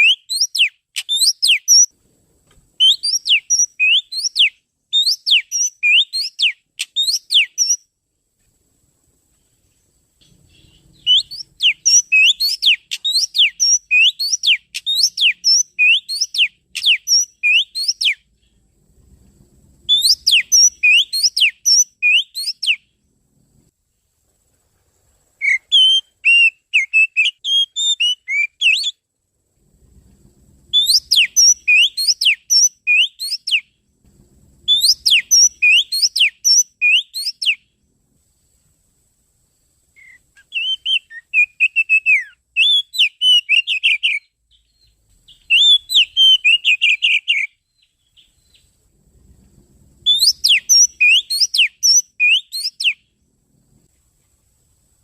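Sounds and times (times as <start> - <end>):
bird whistling descending notes: 2.8 - 7.8, 10.5 - 18.2, 19.9 - 22.8, 30.7 - 33.6, 34.7 - 37.6, 40.0 - 44.2, 45.3 - 47.5, 50.0 - 53.0.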